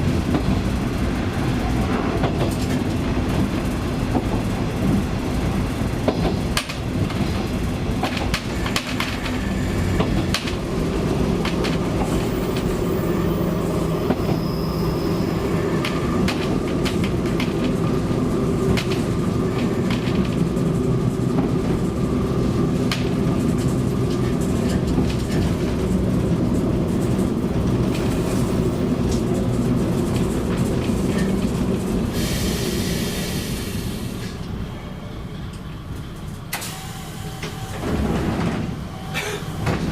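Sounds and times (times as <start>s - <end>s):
diesel railcar engine droning: 0.0s - 39.9s
wheels clicking over rail joints: 0.3s - 13.0s, 15.6s - 32.1s.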